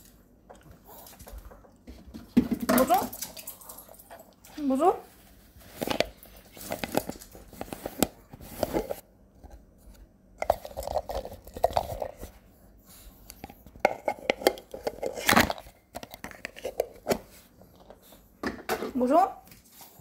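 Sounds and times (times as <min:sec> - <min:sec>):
person talking: 0:18.8 - 0:19.4.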